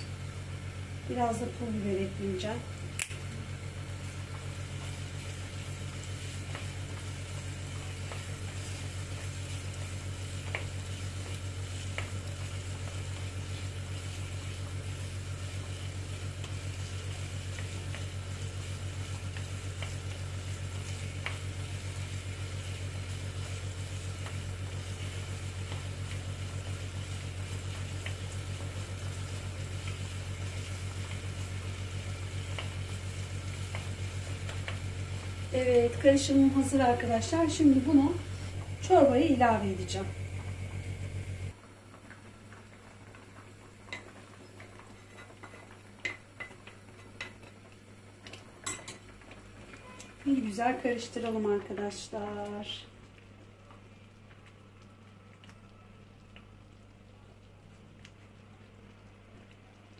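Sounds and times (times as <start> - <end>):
food sizzling in a pan: 0.0 - 55.1
low hum: 25.4 - 41.6.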